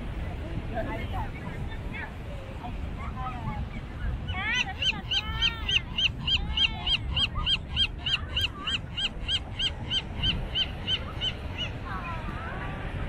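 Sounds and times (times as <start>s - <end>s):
fainter lower bird calls: 4.3s - 11.8s.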